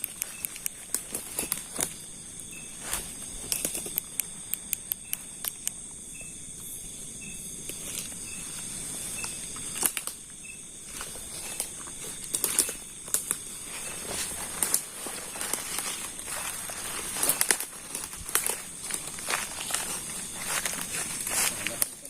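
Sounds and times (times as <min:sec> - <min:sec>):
footsteps through undergrowth: 0:00.0 - 0:04.0, 0:10.8 - 0:22.0
crickets trilling: 0:00.0 - 0:22.0.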